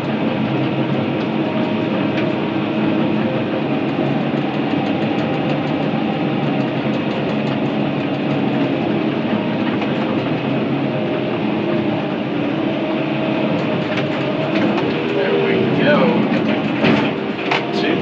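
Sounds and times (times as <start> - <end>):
light rapid clatter: 0.0 - 12.3
excavator diesel engine: 0.0 - 18.0.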